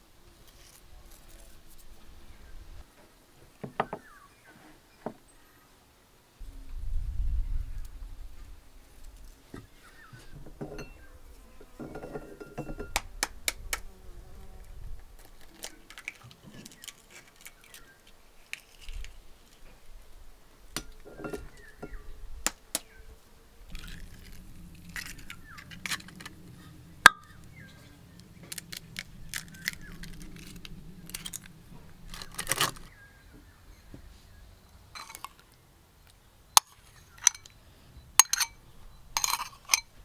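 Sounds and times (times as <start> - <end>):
dishes and utensils clinking: 10.3 - 13.0, 20.8 - 22.0, 23.7 - 27.6, 35.0 - 35.4, 36.6 - 37.5, 38.2 - 38.6, 39.2 - 40.0
low steady hum: 20.0 - 36.0.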